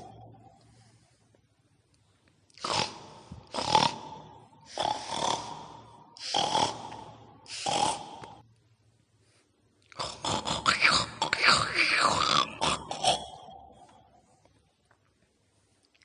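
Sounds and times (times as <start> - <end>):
raspy pig-like snorting grunts: 2.6 - 8.4, 10.0 - 13.6.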